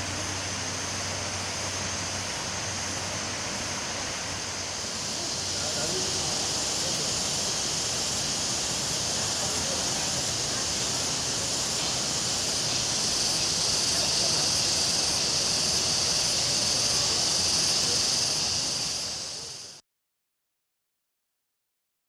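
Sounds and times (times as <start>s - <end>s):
high-pitched forest ambience hiss: 0.0s - 19.8s.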